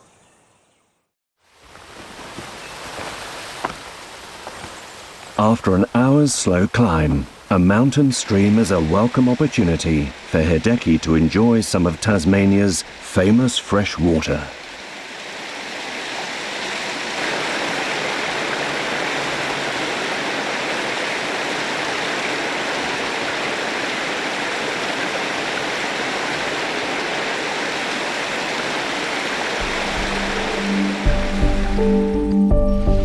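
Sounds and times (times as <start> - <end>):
stream rushing over rocks: 1.4 - 31.9
music: 29.6 - 33.0.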